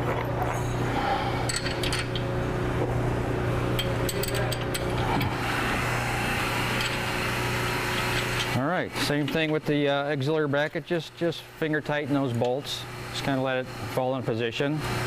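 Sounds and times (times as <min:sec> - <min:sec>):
steady low hum: 0:00.0 - 0:15.0
metallic clinks of bolts and bracket: 0:01.5 - 0:02.3, 0:03.8 - 0:05.0.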